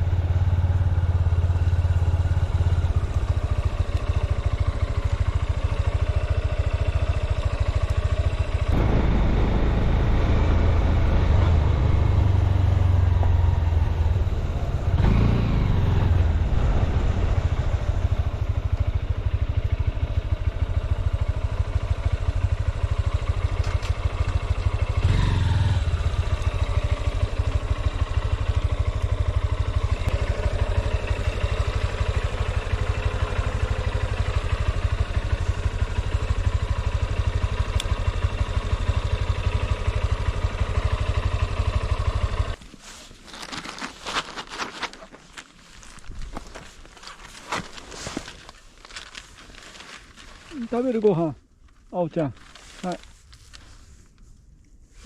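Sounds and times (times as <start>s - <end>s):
motorcycle engine running: 0.0s - 42.6s.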